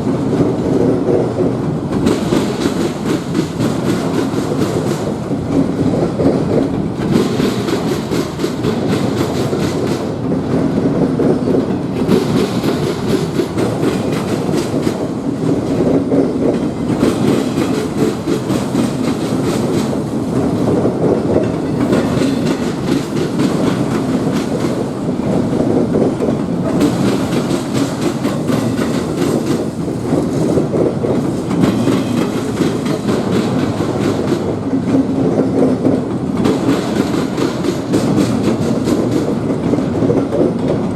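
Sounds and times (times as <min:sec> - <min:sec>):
train wheels clacking over rail joints: 0:00.0 - 0:40.9.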